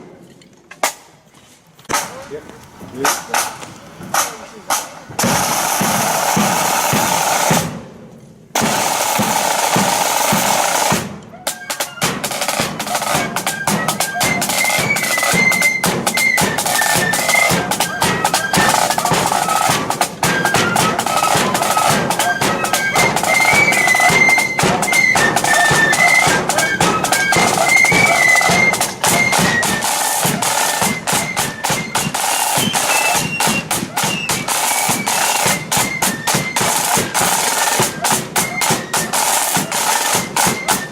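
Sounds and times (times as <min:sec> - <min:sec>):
snare drumming with rolls: 0:01.8 - 0:40.9
flutes playing high tune: 0:08.7 - 0:40.9.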